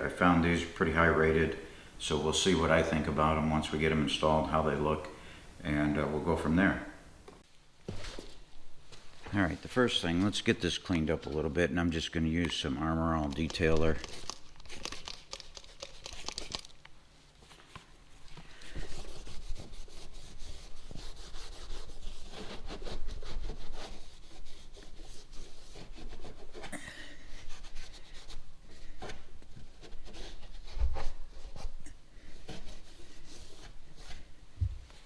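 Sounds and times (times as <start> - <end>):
cloth wiping a surface: 0.0 - 7.0, 18.7 - 35.0.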